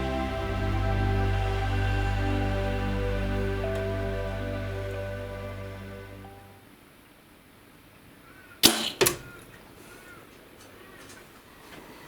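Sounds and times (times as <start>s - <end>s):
arrow striking: 8.6s - 9.3s.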